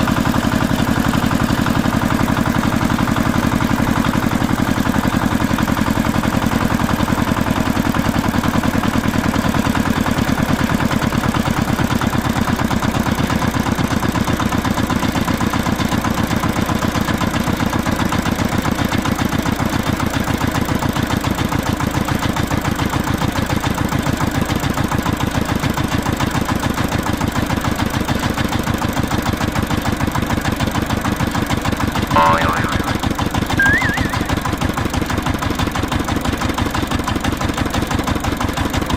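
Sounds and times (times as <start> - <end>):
stepped beep: 33.6 - 34.6.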